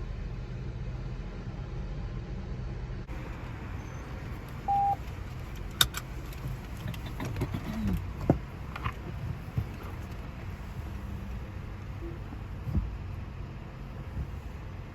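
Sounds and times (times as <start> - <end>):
car wash machinery rumble: 0.0 - 14.9
short beep: 4.7 - 5.0.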